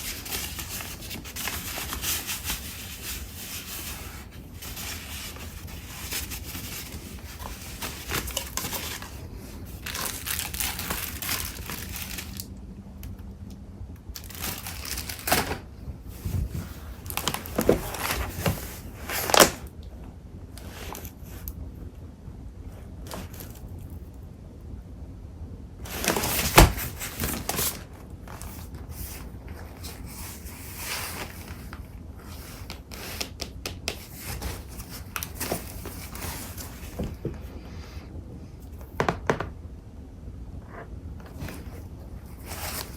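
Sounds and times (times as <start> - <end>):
paper rustling and crinkling: 0.0 - 12.5, 14.2 - 19.7, 23.0 - 23.9, 25.8 - 37.5, 41.2 - 42.9.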